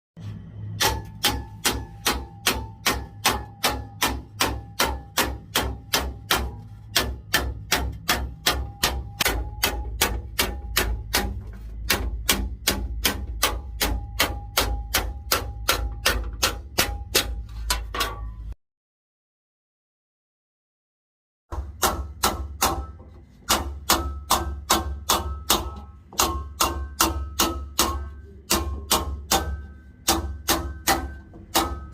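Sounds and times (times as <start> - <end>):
hammer striking sheet metal: 0.2 - 18.6, 21.5 - 31.9
steady low hum: 0.2 - 18.6.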